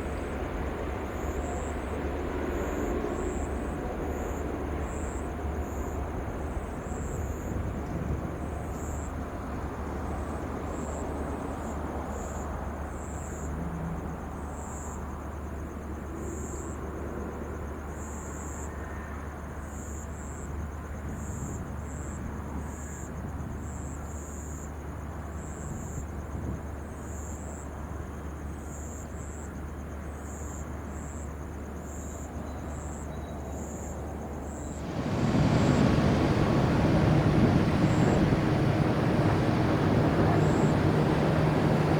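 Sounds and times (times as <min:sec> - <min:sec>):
jet engine noise: 0:34.3 - 0:41.9.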